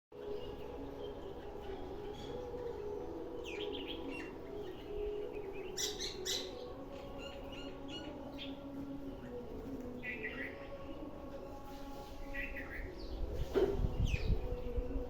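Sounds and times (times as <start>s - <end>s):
sparrows chirping: 0.2s - 14.9s.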